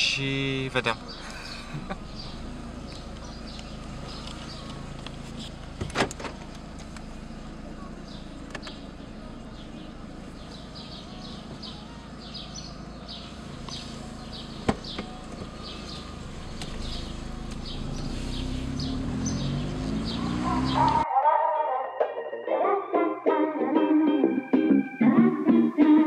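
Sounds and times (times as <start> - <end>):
car engine running: 0.0 - 21.0
small birds chirping: 0.8 - 5.8, 6.4 - 21.0.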